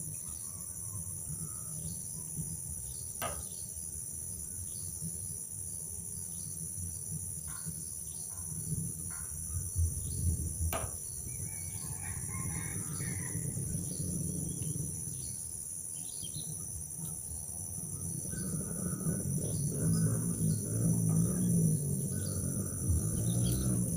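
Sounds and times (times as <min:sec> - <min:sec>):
insects droning: 0:00.0 - 0:23.9
low rumble: 0:17.6 - 0:23.9.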